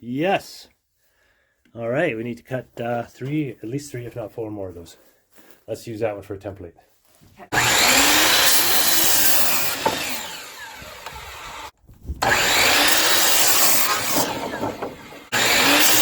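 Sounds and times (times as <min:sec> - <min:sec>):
power saw cutting wood: 0:07.5 - 0:16.0.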